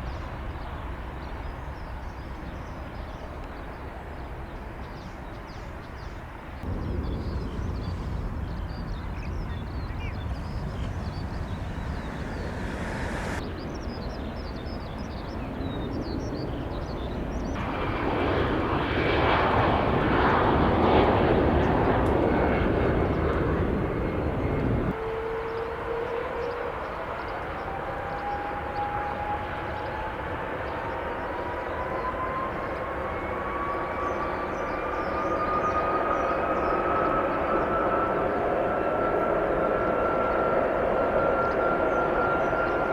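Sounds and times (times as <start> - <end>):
jet airliner engine noise: 0.0 - 42.9
whine climbing in pitch: 6.6 - 13.4.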